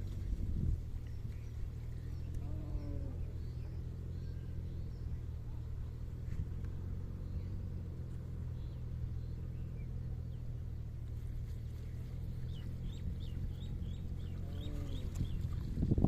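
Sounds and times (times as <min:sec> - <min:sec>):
bird chirping: 0:01.0 - 0:06.0, 0:11.6 - 0:15.6.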